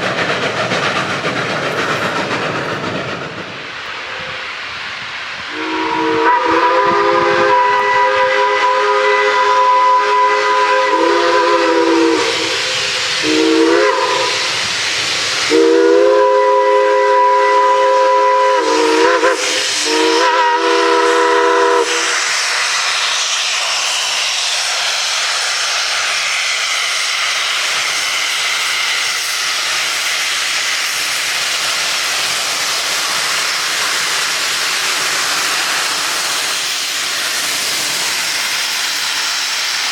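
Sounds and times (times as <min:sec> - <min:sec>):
steam hissing: 0:00.0 - 0:39.9
steam locomotive whistle: 0:05.4 - 0:24.2.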